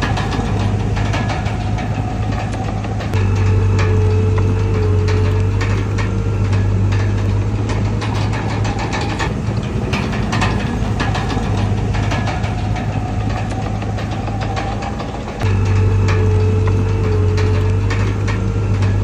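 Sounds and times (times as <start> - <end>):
bulldozer diesel engine running: 0.0 - 19.0
sharp metallic clanks: 0.0 - 19.0.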